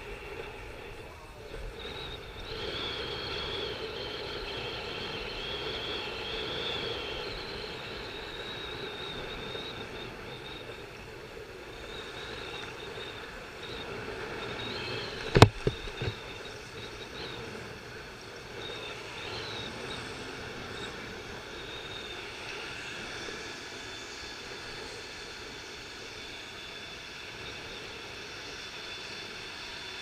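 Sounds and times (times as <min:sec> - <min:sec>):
wind on microphone: 0:00.0 - 0:23.4
sharp knocks: 0:15.3 - 0:16.2.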